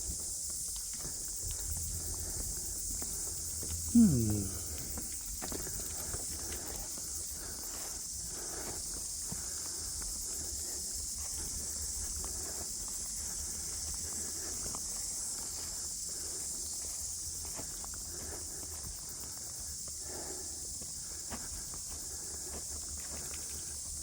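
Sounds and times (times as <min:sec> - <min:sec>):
high-pitched hiss: 0:00.0 - 0:17.3
footsteps outdoors: 0:00.0 - 0:24.0.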